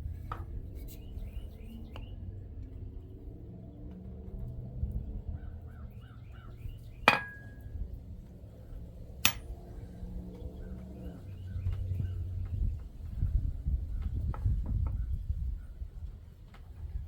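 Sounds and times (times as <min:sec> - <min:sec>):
hammer blows on metal: 0:09.2 - 0:09.5.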